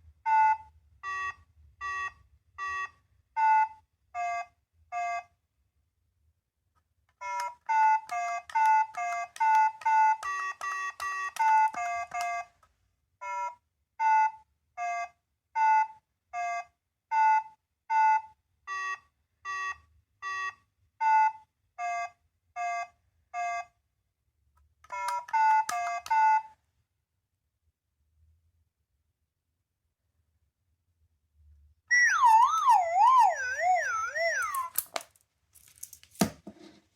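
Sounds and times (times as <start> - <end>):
electronic toy beeping melody: 0.3 - 5.3, 7.2 - 12.5, 13.2 - 23.7, 31.9 - 34.8.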